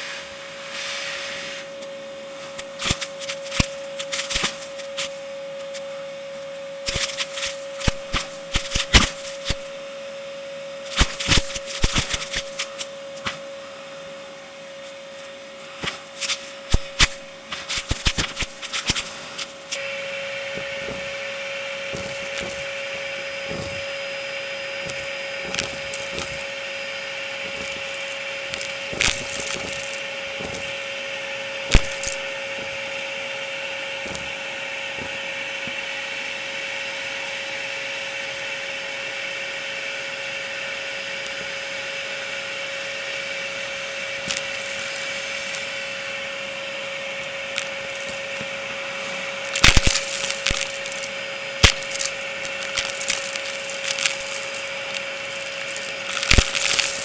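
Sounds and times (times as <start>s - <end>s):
vacuum cleaner whine: 0.0s - 57.0s
debris crackling in vacuum: 15.8s - 36.1s, 47.2s - 57.0s.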